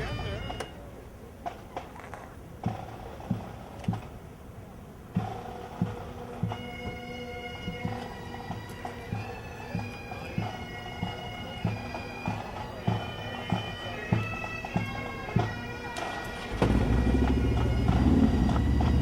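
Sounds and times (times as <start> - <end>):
bagpipes playing: 5.8 - 19.0
low drum thump: 16.5 - 19.0.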